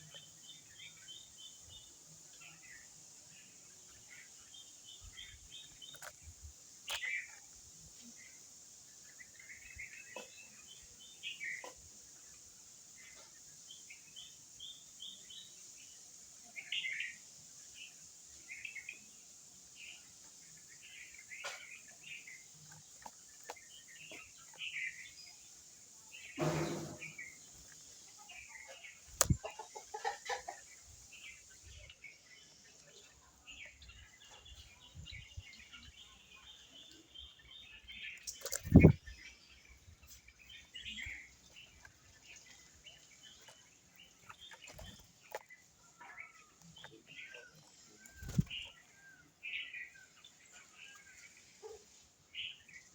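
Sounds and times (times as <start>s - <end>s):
birds chirping: 0.0s - 52.9s
low loud bird call: 26.4s - 27.4s.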